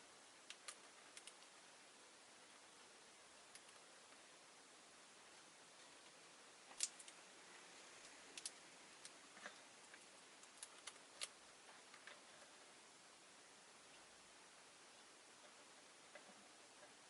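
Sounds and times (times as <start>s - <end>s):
lovebirds clicking and tapping: 0.4s - 1.6s, 3.4s - 4.2s, 6.7s - 7.2s, 8.0s - 12.4s.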